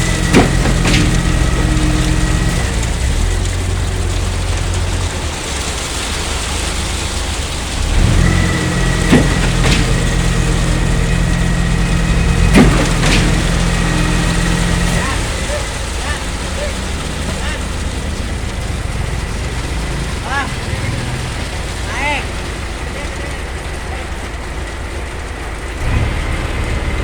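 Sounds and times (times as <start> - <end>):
sharp knocks: 0.0 - 2.8, 8.1 - 16.3
heavy diesel engine running: 0.0 - 27.0.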